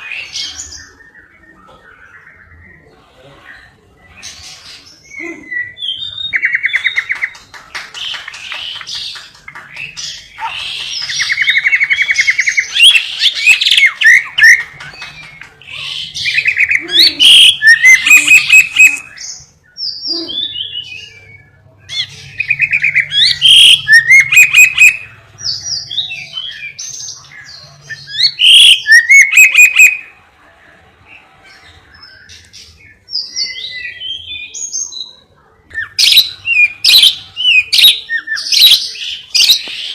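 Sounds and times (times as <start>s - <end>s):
lovebird chattering and chirping: 8.1s - 30.1s, 35.7s - 39.9s.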